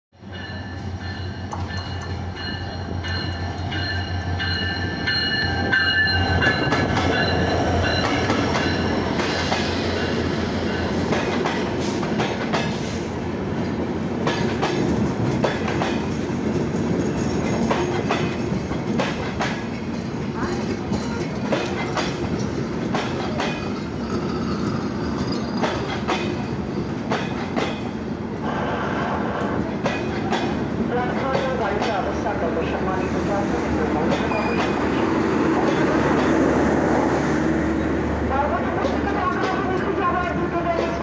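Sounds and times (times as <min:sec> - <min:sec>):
wheels clicking over rail joints: 0:13.6 - 0:26.5.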